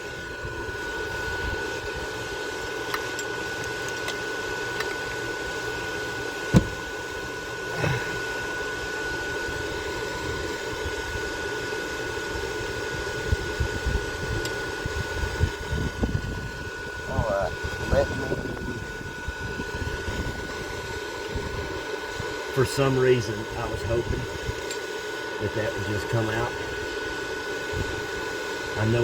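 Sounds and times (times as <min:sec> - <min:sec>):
fan whirring with high whine: 0:00.0 - 0:29.0
sharp knock: 0:06.6 - 0:06.8.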